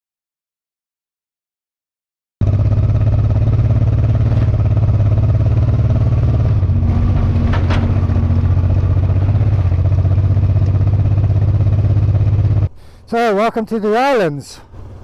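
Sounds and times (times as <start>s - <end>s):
motorcycle engine running: 2.4s - 12.7s.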